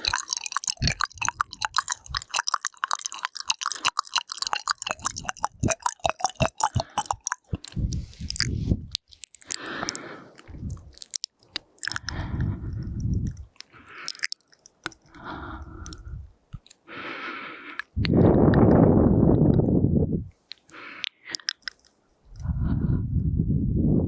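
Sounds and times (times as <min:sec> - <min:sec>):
breathy puffs and exhales: 0:00.0 - 0:10.9, 0:11.9 - 0:14.3, 0:14.9 - 0:16.3
tongue and lip clicking: 0:00.0 - 0:16.8, 0:17.6 - 0:19.7, 0:20.5 - 0:22.6.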